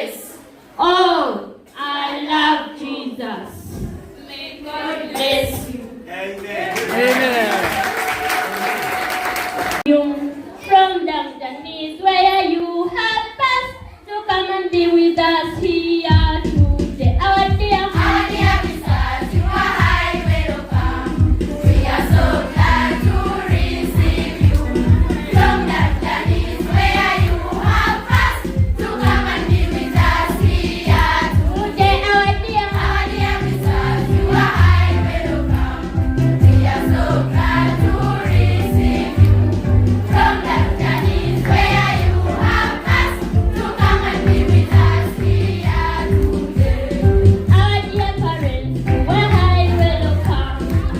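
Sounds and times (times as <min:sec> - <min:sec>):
low regular beat: 0:15.5 - 0:50.9
children singing in unison: 0:17.9 - 0:31.8, 0:32.7 - 0:39.4, 0:40.1 - 0:47.2
bass line: 0:31.0 - 0:43.1, 0:43.8 - 0:50.9.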